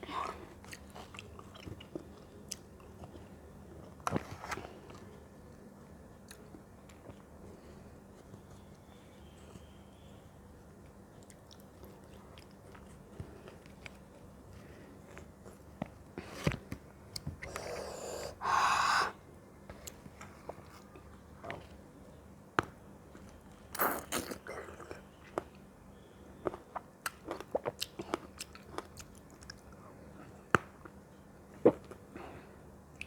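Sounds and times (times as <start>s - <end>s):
chewing and biting fruit: 26.7s - 29.6s.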